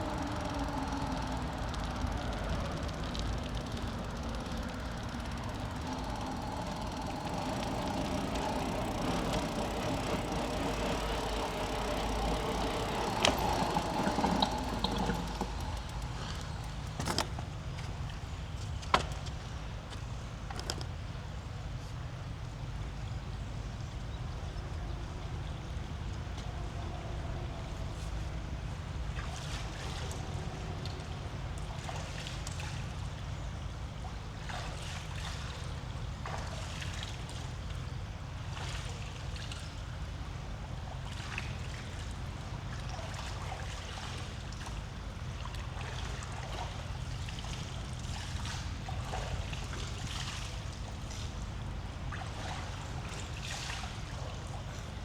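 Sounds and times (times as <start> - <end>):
creek water flowing: 0.0 - 18.8
bicycle rolling on trail: 0.0 - 22.7, 23.4 - 55.0.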